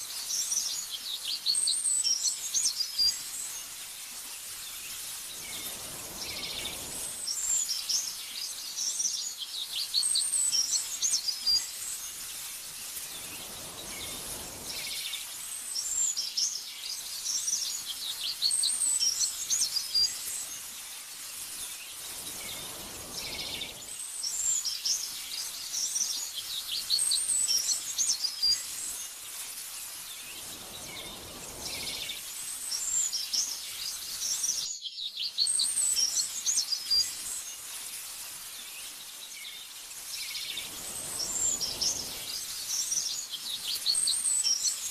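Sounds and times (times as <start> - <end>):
steady soft hiss: 0.0 - 34.8, 35.4 - 44.9
small birds chirping: 0.0 - 44.9
wind whoosh: 5.3 - 7.4, 13.0 - 15.1, 22.0 - 24.0, 30.2 - 32.4, 40.5 - 43.0.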